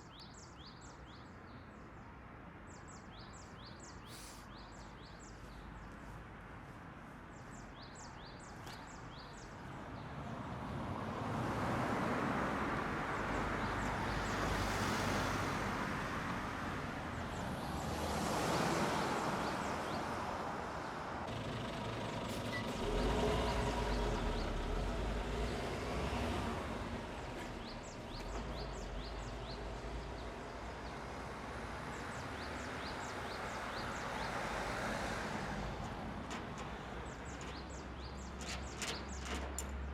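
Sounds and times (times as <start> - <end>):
motor vehicles passing: 10.0 - 39.9
birds chirping: 26.9 - 31.0, 35.8 - 39.7.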